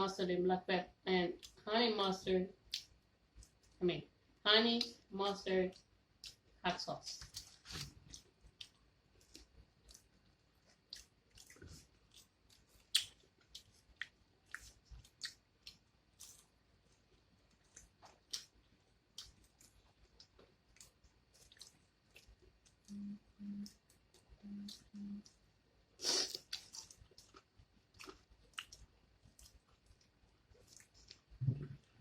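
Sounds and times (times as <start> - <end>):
chewing with wet mouth clicks: 5.7 - 6.4, 7.3 - 23.0, 26.3 - 32.0.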